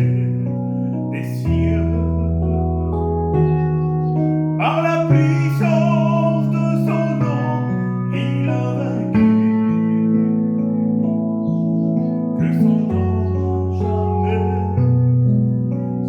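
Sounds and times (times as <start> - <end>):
solo voice singing hymn: 0.0 - 2.9, 4.6 - 10.1, 12.4 - 15.1
sustained instrumental chords: 0.0 - 16.0.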